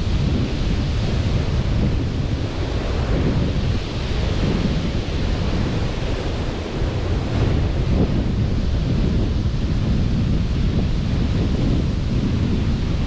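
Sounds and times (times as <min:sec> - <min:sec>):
sea surf washing onto beach: 0:00.0 - 0:13.0
wind rumbling on microphone: 0:00.0 - 0:13.0.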